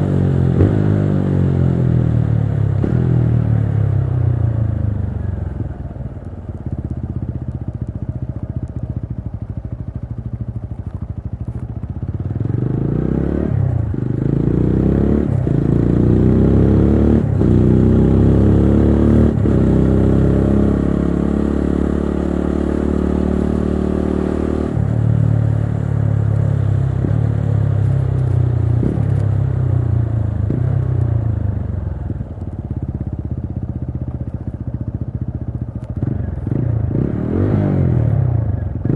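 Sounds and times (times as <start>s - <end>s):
motorcycle engine revving through gears: 0.0s - 5.8s, 9.3s - 38.9s.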